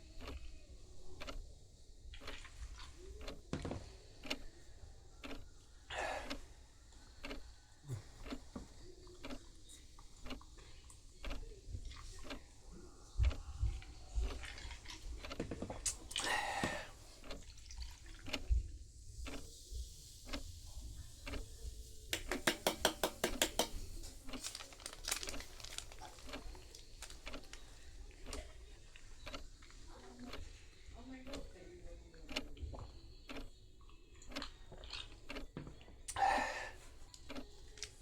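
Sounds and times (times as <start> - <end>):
liquid pouring: 13.9 - 18.4
tableware clicks and knocks: 22.2 - 23.9.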